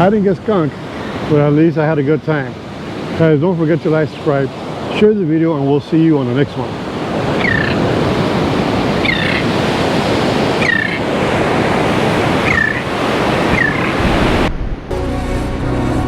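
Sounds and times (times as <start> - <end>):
bird calling: 0.0 - 1.7, 6.6 - 14.0
ocean surf on a beach: 0.0 - 14.9.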